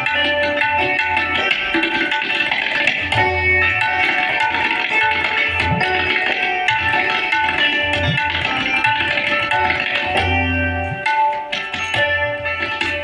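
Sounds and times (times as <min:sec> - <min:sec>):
santoor hammered notes: 0:00.0 - 0:13.0
tabla strokes: 0:00.0 - 0:13.0.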